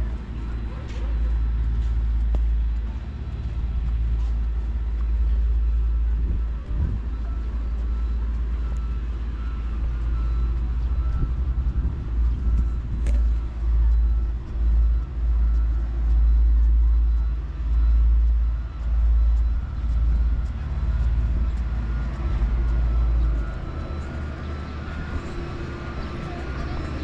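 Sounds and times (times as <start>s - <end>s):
road traffic noise: 0.0s - 27.0s
wind buffeting the microphone: 3.6s - 16.9s.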